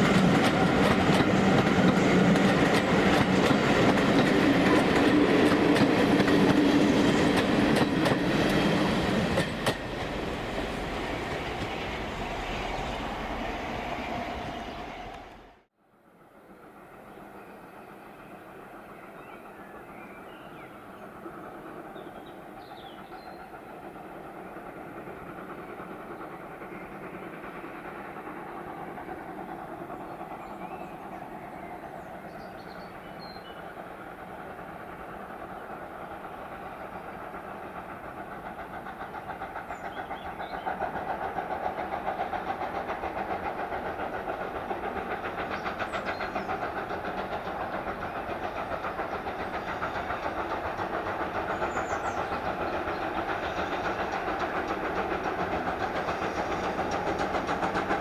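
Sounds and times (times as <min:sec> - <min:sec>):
steam train running: 0:00.0 - 0:15.6, 0:16.2 - 0:58.0.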